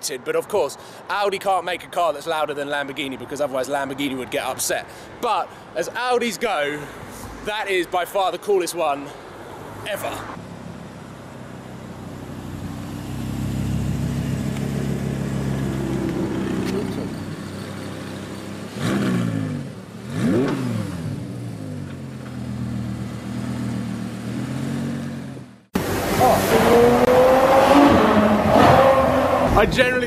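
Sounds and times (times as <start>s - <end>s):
car engine idling and revving: 9.7s - 30.0s.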